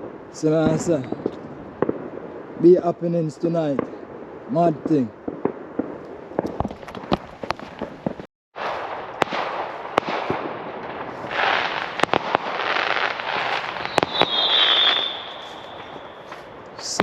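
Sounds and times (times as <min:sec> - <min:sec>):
fireworks bangs: 0:00.0 - 0:17.0
fireworks crackling hiss: 0:00.0 - 0:17.0
high firework whistle: 0:11.2 - 0:16.6.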